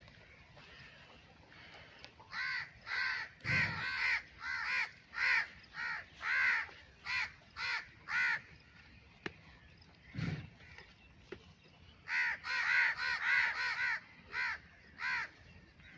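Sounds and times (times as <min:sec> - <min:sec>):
crow cawing: 0:02.3 - 0:08.4, 0:12.1 - 0:15.3.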